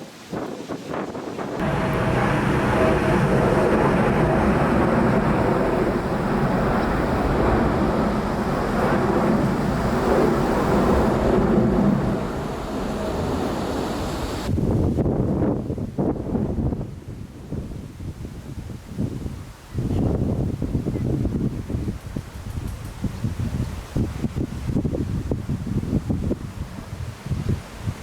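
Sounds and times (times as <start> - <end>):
wind buffeting microphone: 0.0 - 28.0
jet engines rushing with whine: 1.1 - 15.0.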